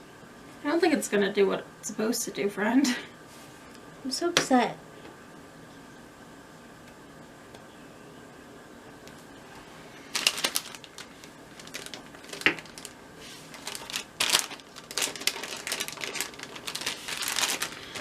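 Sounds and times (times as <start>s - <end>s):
plastic packaging crinkling: 10.0s - 18.0s.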